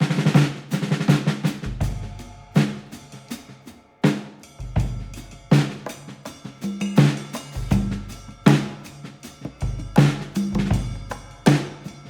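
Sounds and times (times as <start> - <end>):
drum-led music with bass line: 1.5 - 3.6, 4.4 - 12.0.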